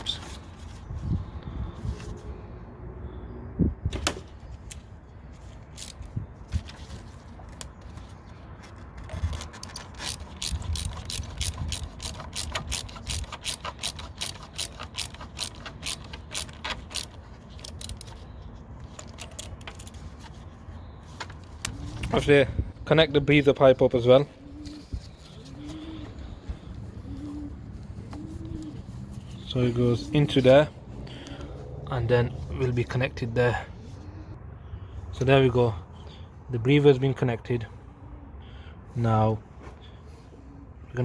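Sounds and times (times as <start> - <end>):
hose clip ratcheting clicks: 5.8 - 6.1, 9.1 - 18.2, 18.8 - 20.0.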